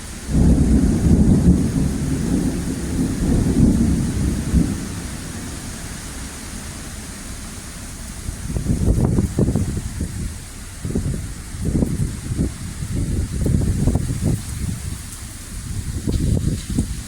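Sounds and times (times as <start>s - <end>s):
heavy rain hissing: 0.0s - 17.0s
thunder rumbling: 0.0s - 17.0s.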